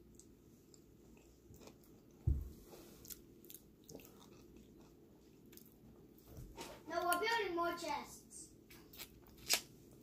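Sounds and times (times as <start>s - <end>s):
faint chewing: 0.0s - 6.3s.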